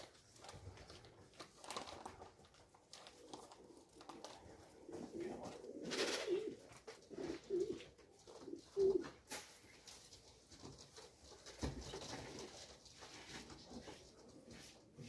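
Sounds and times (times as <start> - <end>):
pigeons cooing: 4.7 - 9.1.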